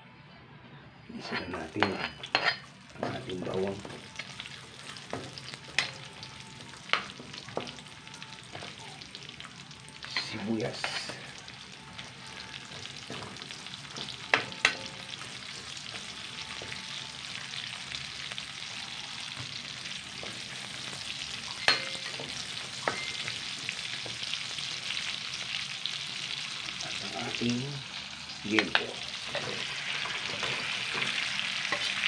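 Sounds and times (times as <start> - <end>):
onion sizzling in hot oil: 1.3 - 32.0
metal spatula clinking on wok: 21.6 - 23.4.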